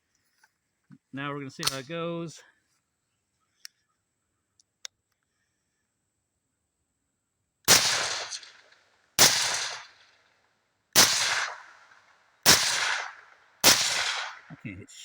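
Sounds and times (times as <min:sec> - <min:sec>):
suppressed rifle shots: 0:07.7 - 0:10.2, 0:11.0 - 0:14.5.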